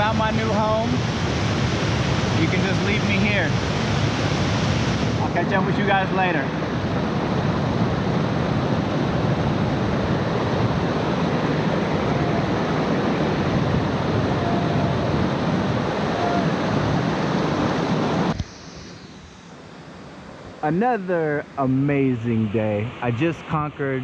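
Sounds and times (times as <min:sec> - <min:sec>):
waterfall rushing: 0:00.0 - 0:18.3.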